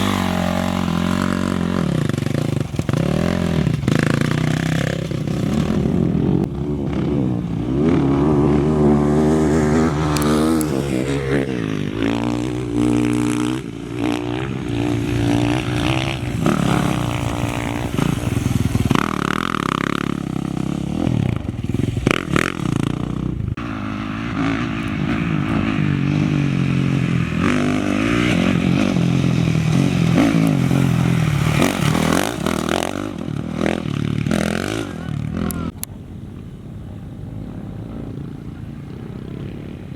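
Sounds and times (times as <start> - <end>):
race vehicle engines revving: 0.0 - 39.9.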